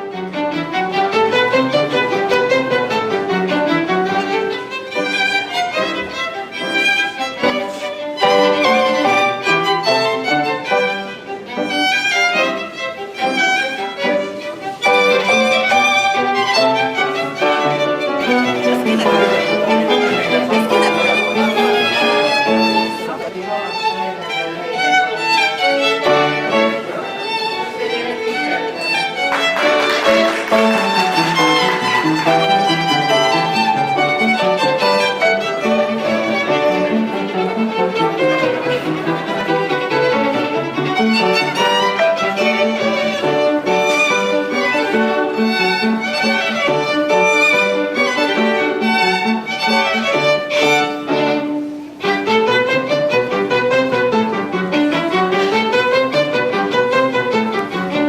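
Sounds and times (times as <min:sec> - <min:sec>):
violin music: 0:00.0 - 0:58.0.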